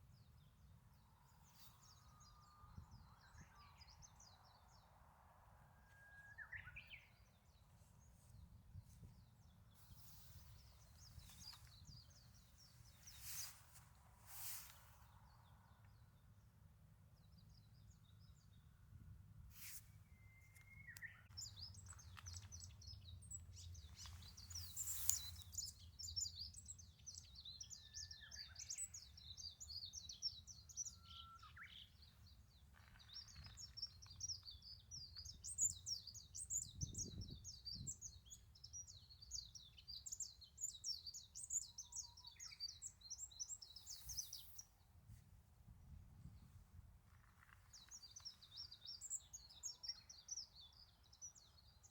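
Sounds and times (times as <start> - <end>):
birds chirping: 20.2 - 44.7, 47.1 - 51.9.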